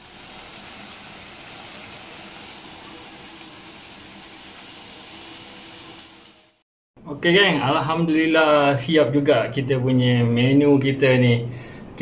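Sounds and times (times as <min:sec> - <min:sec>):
food sizzling in a pan: 0:00.0 - 0:06.6.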